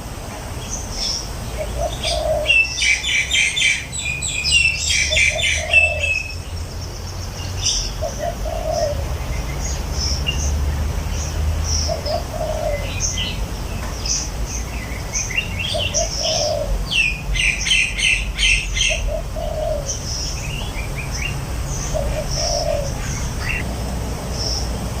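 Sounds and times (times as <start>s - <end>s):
birds chirping and twittering: 0.0s - 25.0s
dove cooing: 1.5s - 3.8s, 4.7s - 6.4s, 7.9s - 9.3s, 11.8s - 13.4s, 15.6s - 23.7s.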